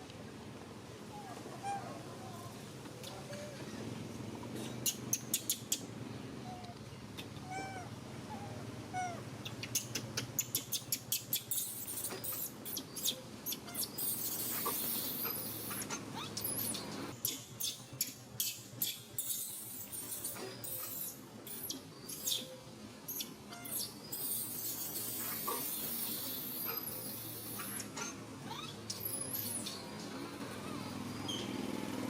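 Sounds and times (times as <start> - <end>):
baby monkey squeaking: 7.4 - 31.6.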